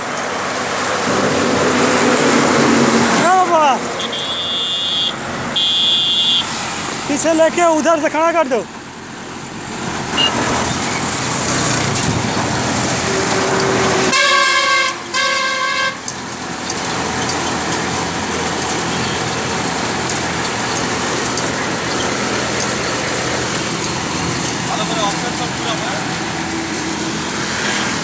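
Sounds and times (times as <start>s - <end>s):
engine running: 0.0s - 14.2s, 16.0s - 28.0s
vehicle horn honking: 4.0s - 6.5s, 10.2s - 10.4s, 14.1s - 16.0s.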